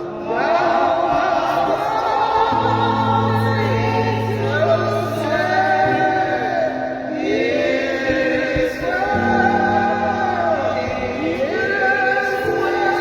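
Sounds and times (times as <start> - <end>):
gospel choir singing: 0.0 - 13.0.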